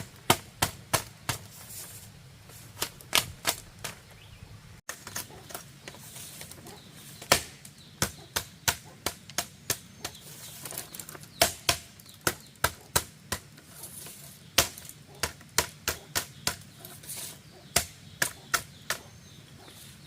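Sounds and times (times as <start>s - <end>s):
hand tool striking bamboo: 0.0s - 1.6s, 2.7s - 4.0s, 7.2s - 19.2s.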